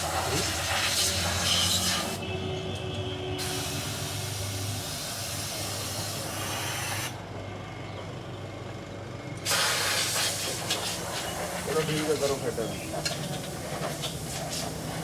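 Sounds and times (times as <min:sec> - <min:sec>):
compressed air hissing from blow gun: 0:09.5 - 0:15.0.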